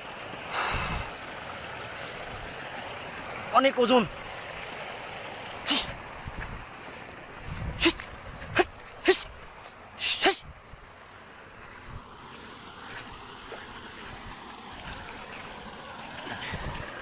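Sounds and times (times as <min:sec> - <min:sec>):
background hiss: 0:00.5 - 0:01.4.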